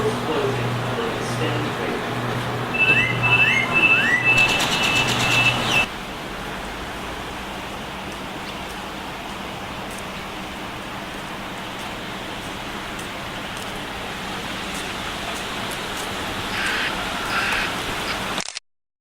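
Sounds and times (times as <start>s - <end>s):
train door warning beeping: 0.0s - 5.9s
train noise: 0.0s - 18.3s
bird chirps: 2.7s - 5.9s.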